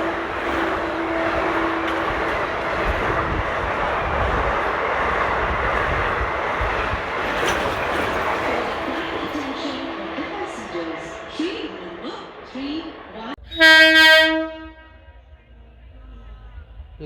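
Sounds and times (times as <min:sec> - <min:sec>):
two-tone train horn: 0:00.0 - 0:03.4, 0:13.4 - 0:15.3
train wheels rattling on rail: 0:00.0 - 0:13.4.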